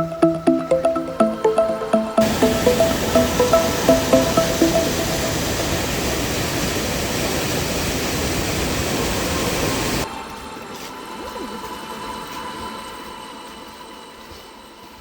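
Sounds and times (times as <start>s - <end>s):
waterfall rushing: 2.2s - 10.0s.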